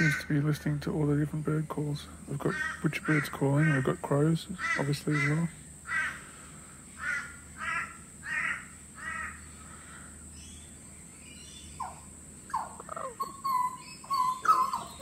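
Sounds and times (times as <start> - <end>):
crow cawing: 0.0 - 0.4, 2.4 - 10.2
bird singing fluted whistles: 12.6 - 15.0.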